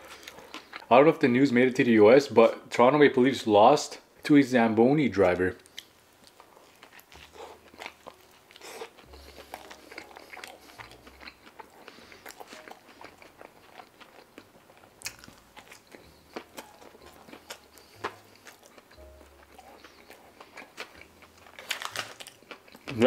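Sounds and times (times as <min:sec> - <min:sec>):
biting and chewing: 0:05.6 - 0:23.0.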